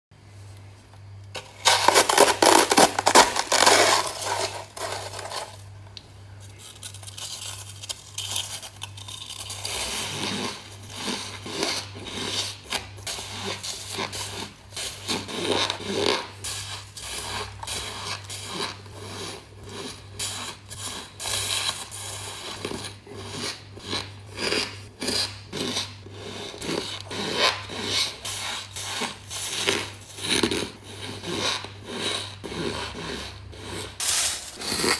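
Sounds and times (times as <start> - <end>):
ice being chewed: 6.5 - 28.2.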